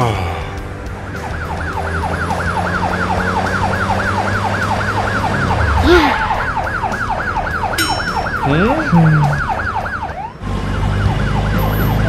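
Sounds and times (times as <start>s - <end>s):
cartoon police siren wailing: 1.4s - 11.7s
low engine hum: 8.4s - 12.0s.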